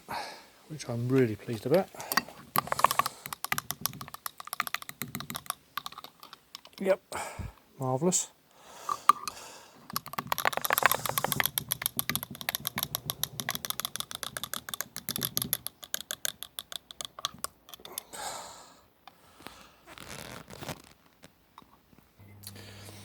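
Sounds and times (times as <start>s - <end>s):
scrubbing on metal toy car: 1.6s - 6.9s, 9.1s - 17.9s.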